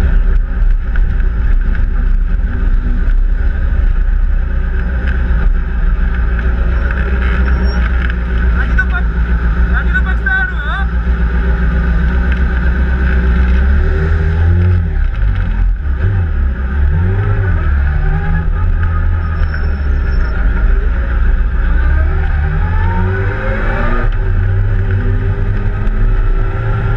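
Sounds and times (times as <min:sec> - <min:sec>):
motorcycle engine revving: 0:10.9 - 0:26.9.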